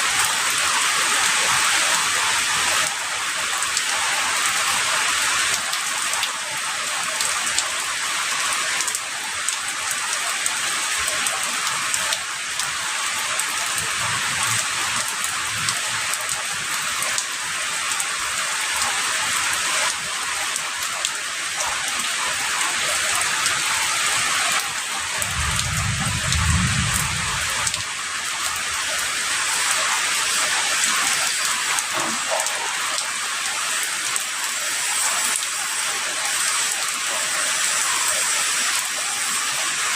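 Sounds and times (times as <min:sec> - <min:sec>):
heavy rain falling: 0:00.0 - 0:39.9
distant thunder rumble: 0:25.2 - 0:27.8.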